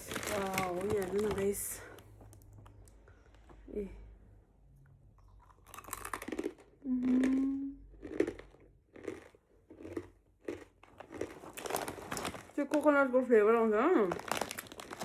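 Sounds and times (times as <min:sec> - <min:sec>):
crunchy snack being chewed: 0:05.2 - 0:12.9, 0:14.1 - 0:15.0
person humming: 0:06.8 - 0:07.8.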